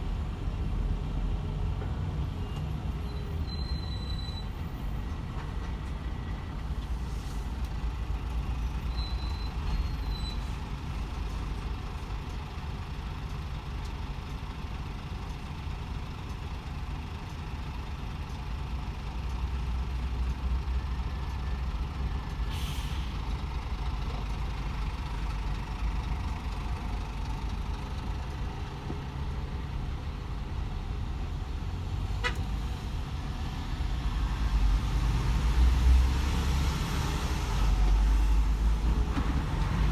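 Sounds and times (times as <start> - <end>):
truck engine and road noise: 0.0 - 39.9
short hiss: 22.5 - 23.1.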